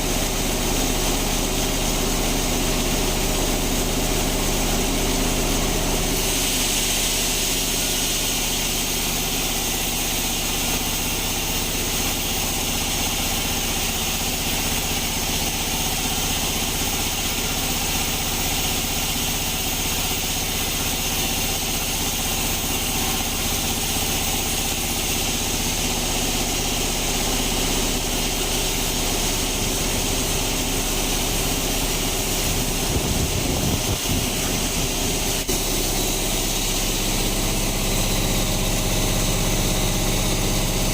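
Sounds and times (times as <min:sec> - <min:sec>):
bandsaw running: 0:00.0 - 0:40.9.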